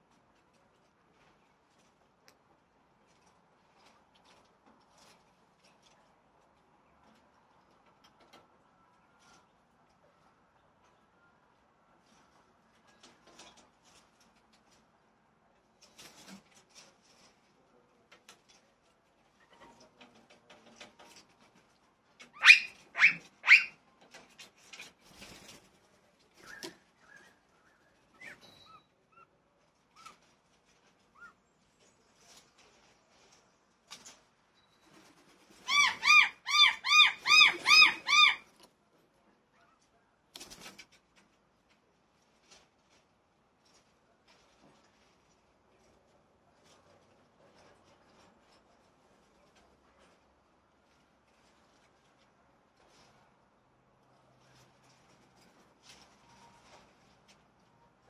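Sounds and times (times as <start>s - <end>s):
brief rustle: 15.6s - 35.8s, 39.7s - 57.9s
bird calling: 22.4s - 23.8s, 35.6s - 38.4s.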